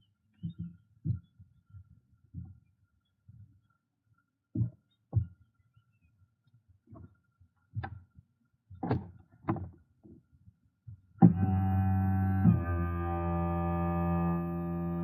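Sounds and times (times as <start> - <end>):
dull knocks and thuds: 8.8 - 9.8
music with held chord: 11.4 - 15.0.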